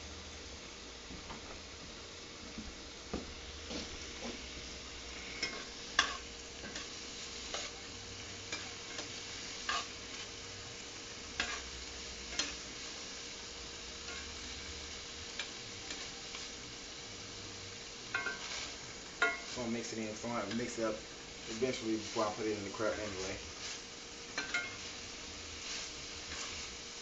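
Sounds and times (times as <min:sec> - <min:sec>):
food sizzling in a frying pan: 0:00.0 - 0:27.0.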